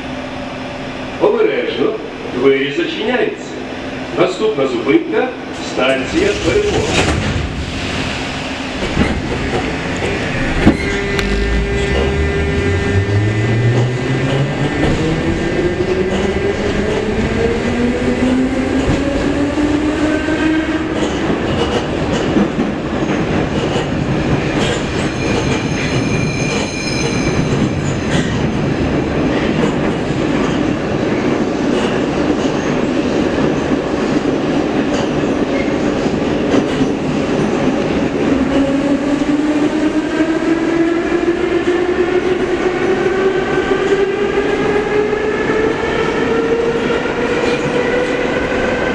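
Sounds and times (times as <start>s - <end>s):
train wheels rumbling on rails: 0.0s - 48.9s
high thin wheel squeal: 25.1s - 27.5s.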